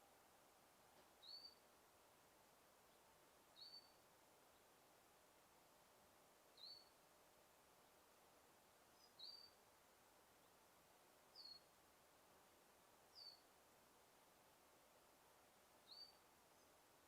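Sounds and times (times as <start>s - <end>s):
faint forest ambience hiss: 0.0s - 17.0s
bird chirping: 1.2s - 1.6s, 2.9s - 4.7s, 6.6s - 7.0s, 9.0s - 9.6s, 11.3s - 11.7s, 13.1s - 13.5s, 15.8s - 16.8s.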